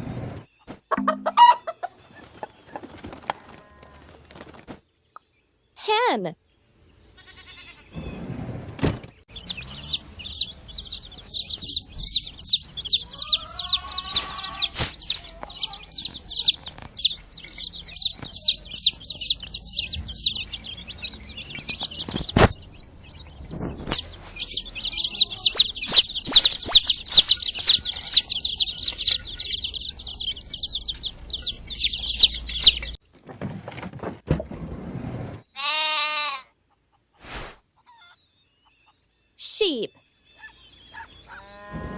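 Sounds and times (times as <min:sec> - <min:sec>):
chicks peeping: 0:00.6 - 0:05.2, 0:09.2 - 0:33.2, 0:37.8 - 0:39.4, 0:40.2 - 0:41.9
hen clucks: 0:00.9 - 0:04.1, 0:09.4 - 0:22.7, 0:23.9 - 0:33.0, 0:37.8 - 0:39.0.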